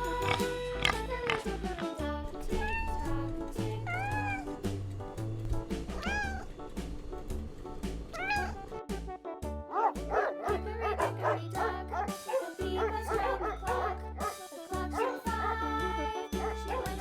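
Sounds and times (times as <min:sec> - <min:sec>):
background music with a beat: 0:00.0 - 0:17.0
cat meowing: 0:02.4 - 0:04.6, 0:06.0 - 0:06.6, 0:08.1 - 0:08.6
dog barking: 0:09.7 - 0:14.4, 0:15.0 - 0:15.2, 0:16.4 - 0:17.0.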